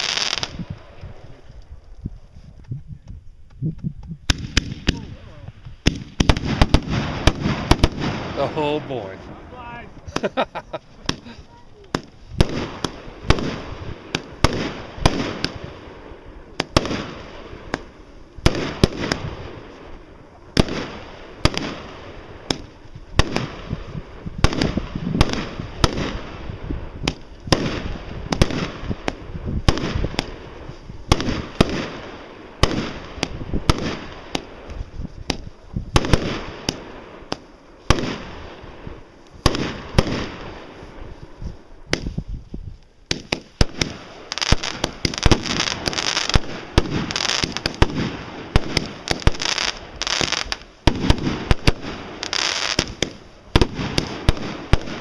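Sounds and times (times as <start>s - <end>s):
fireworks banging: 0.0s - 1.5s, 3.0s - 42.4s, 43.0s - 55.0s.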